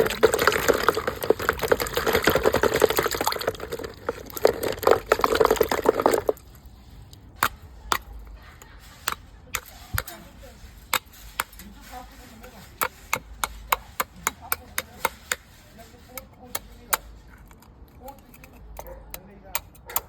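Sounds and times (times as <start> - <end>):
liquid splashing: 0.0 - 8.3.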